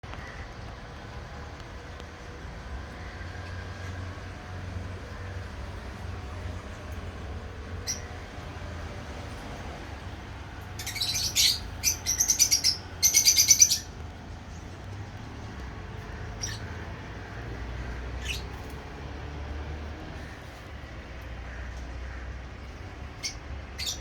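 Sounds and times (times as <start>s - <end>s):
lovebirds chirping: 7.8s - 8.4s, 10.6s - 15.0s, 16.0s - 17.1s, 17.8s - 18.8s, 22.6s - 24.0s.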